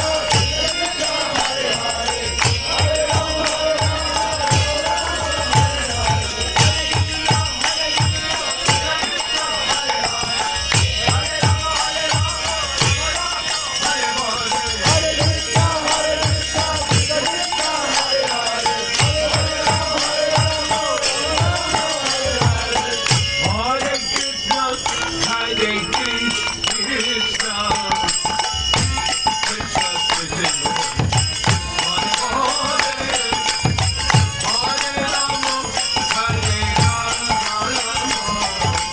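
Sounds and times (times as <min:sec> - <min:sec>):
voices chanting: 0:00.0 - 0:27.9
metallic jingling hand percussion: 0:00.0 - 0:38.9.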